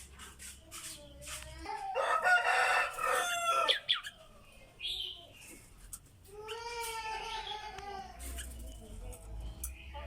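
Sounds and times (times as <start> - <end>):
rooster crowing: 1.8 - 3.9.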